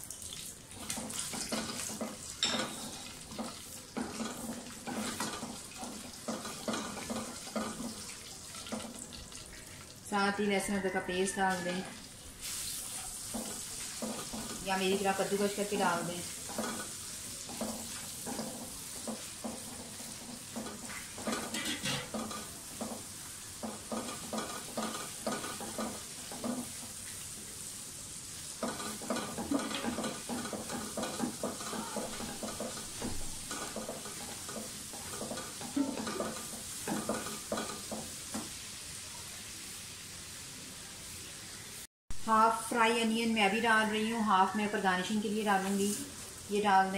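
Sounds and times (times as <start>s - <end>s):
spices sizzling in hot oil: 0.0s - 10.5s, 11.2s - 46.9s
spatula scraping wok: 0.8s - 9.0s, 10.7s - 38.6s.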